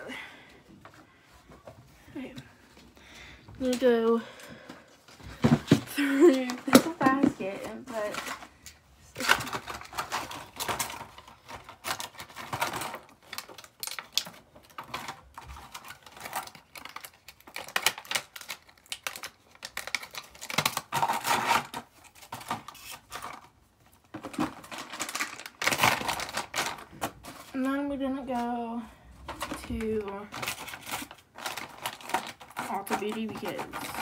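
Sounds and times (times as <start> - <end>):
small items clicking and clattering: 5.4 - 28.6, 29.2 - 34.0.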